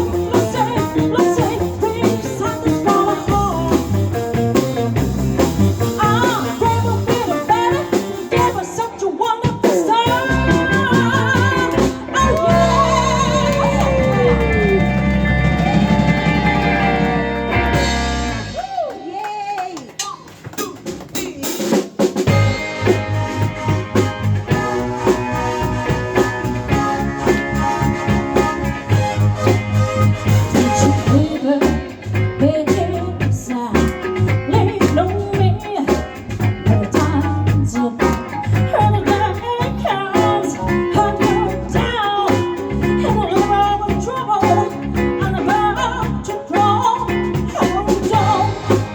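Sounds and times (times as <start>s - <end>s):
blues-rock band playing: 0.0s - 18.8s, 20.4s - 48.9s
electric guitar with pitch bends: 10.1s - 18.6s, 22.3s - 46.2s.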